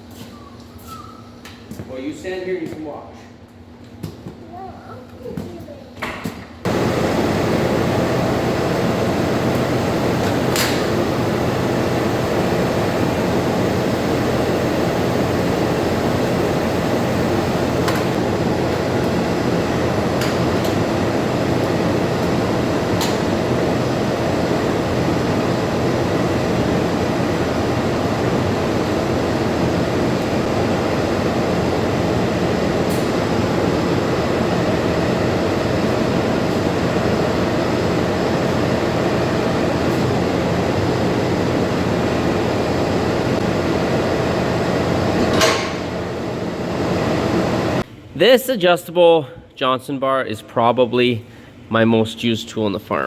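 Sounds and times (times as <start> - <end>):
loud machine drone: 6.7 - 47.8.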